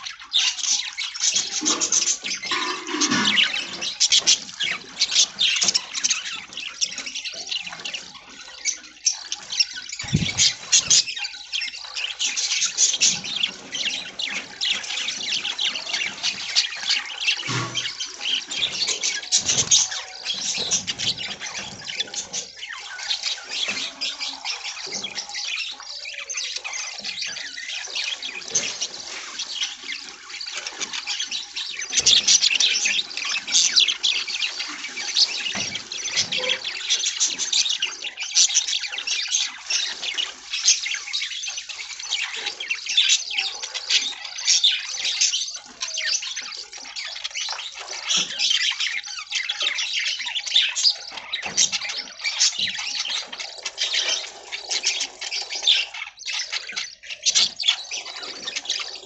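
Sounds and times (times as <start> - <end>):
flock of budgerigars chattering: 0.0 - 59.0.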